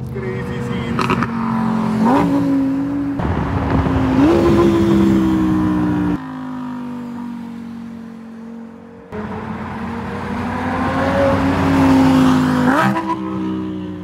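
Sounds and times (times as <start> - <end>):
car engine accelerating hard: 9.1 - 14.0.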